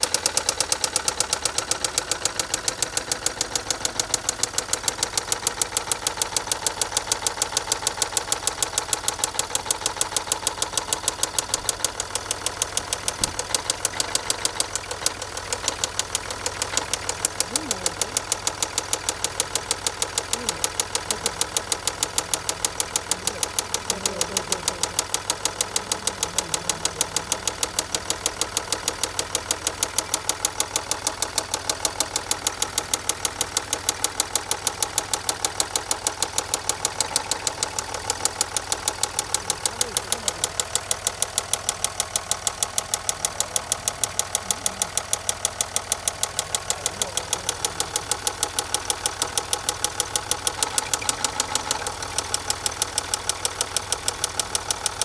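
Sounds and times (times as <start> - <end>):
engine running: 0.0 - 55.0
sharp knocking tick: 0.0 - 55.0.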